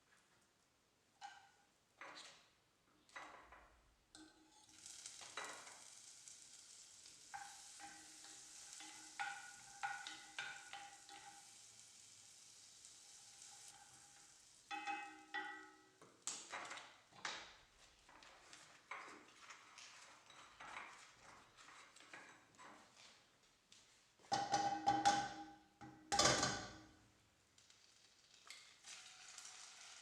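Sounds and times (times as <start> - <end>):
food sizzling in frying pan: 4.4 - 16.5, 27.6 - 30.0.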